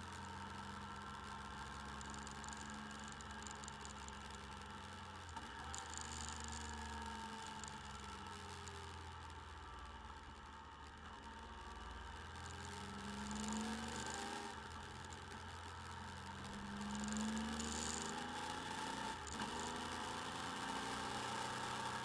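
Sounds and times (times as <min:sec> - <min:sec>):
motorcycle engine accelerating: 0:12.4 - 0:22.0.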